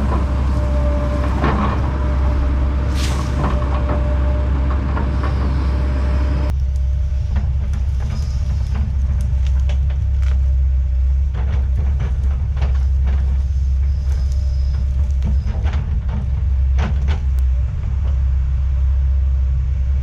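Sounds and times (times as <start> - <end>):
heavy diesel machinery droning: 0.0 - 20.0
wood cracking and snapping: 6.5 - 17.4.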